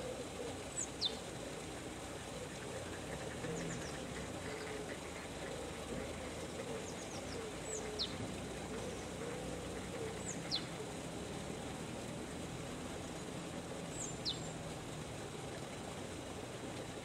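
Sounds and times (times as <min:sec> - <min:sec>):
steady background noise: 0:00.0 - 0:17.0
small birds chirping: 0:00.8 - 0:01.3, 0:06.7 - 0:08.2, 0:10.0 - 0:10.8, 0:13.9 - 0:14.6.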